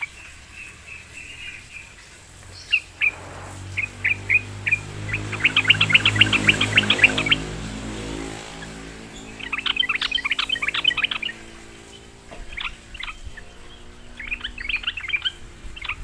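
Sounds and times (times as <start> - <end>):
bird chirping and singing: 0.0 - 16.0
low steady hum: 0.0 - 16.0.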